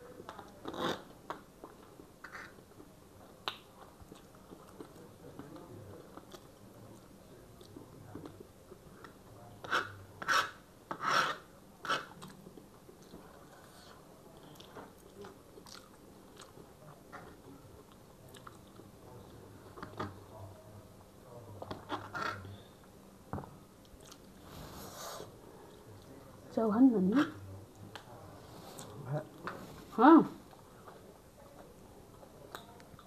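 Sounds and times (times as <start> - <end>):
chewing and mouth sounds: 14.4 - 16.6, 23.8 - 24.3.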